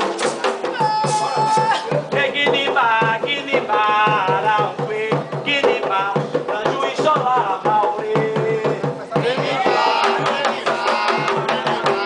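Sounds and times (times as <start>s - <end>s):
hand drums beating: 0.0s - 12.0s
voices singing a religious chant: 8.7s - 12.0s.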